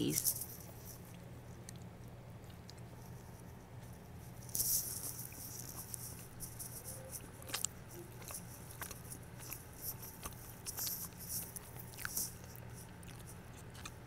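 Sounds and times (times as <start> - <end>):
wet chewing and mouth clicks: 0.1 - 14.0.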